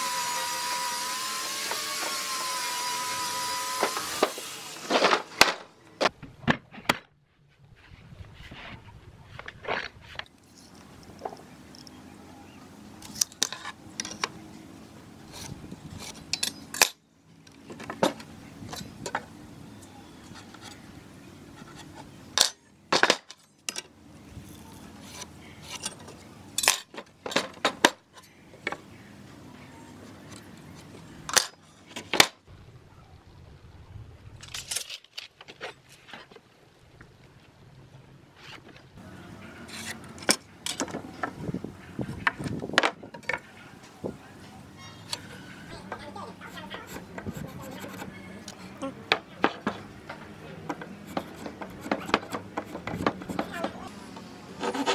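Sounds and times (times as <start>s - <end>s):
hand tools clicking and clinking: 16.0s - 19.2s, 24.6s - 28.3s.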